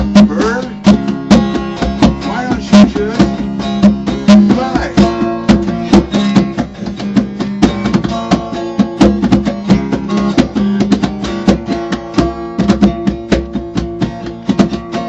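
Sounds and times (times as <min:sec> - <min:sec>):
acoustic guitar strummed: 0:00.0 - 0:15.0.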